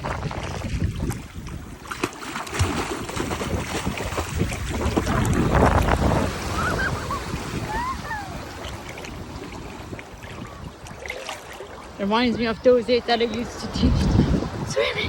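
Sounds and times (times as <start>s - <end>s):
ocean wave breaking: 2.5s - 15.0s
rushing surf wash: 3.0s - 15.0s.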